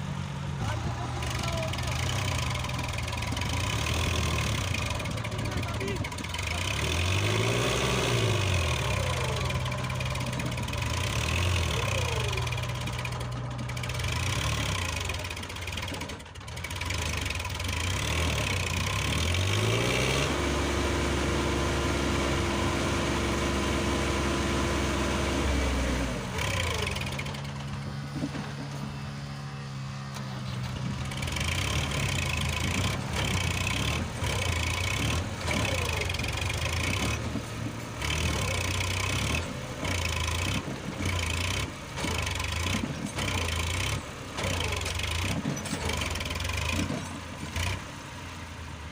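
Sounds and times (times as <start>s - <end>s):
tractor diesel engine revving: 0.0s - 48.9s.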